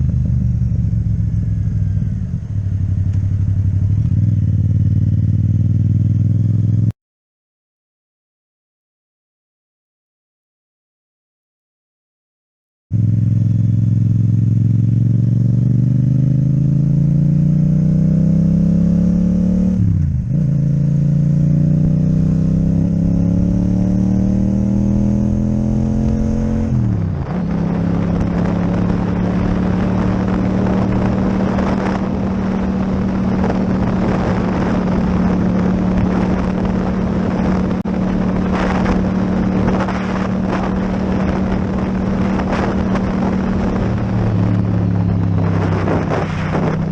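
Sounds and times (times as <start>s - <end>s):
motorcycle engine accelerating: 0.0s - 7.0s, 12.9s - 46.9s
wind rushing over microphone: 14.6s - 46.9s.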